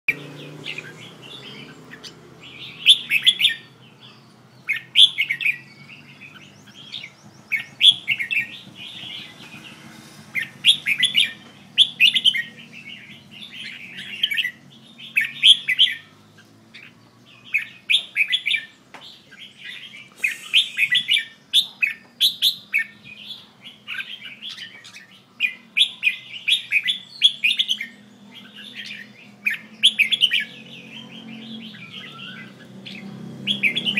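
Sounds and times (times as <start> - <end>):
bird singing chirpy phrases: 0.1 - 9.8, 10.4 - 33.9.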